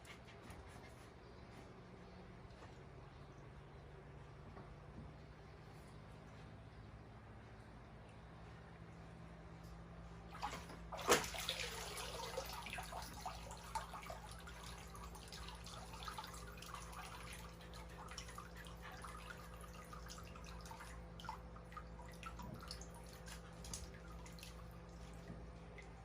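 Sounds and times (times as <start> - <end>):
water sloshing and dripping: 9.6 - 26.0
dog splashing into pool: 10.3 - 25.2.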